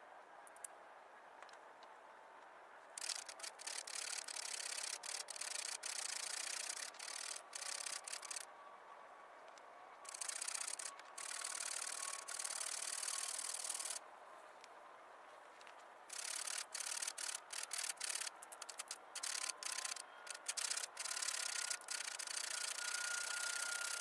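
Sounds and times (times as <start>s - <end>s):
chain saw rasping through branch: 16.1s - 24.0s.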